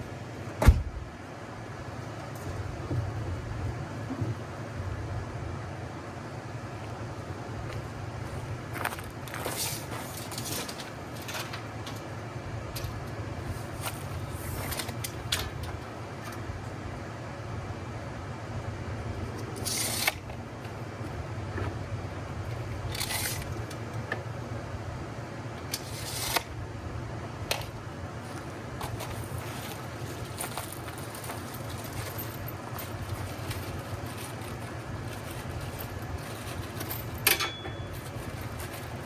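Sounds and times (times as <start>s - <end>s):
steady low hum: 0.0s - 39.0s
short scraping sounds: 25.8s - 26.5s.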